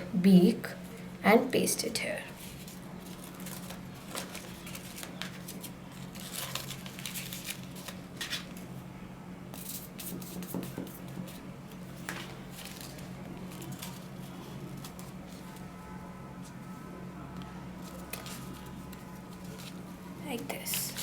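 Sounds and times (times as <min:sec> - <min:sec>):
paper rustling: 0:02.3 - 0:08.8, 0:09.6 - 0:15.7, 0:17.8 - 0:21.0.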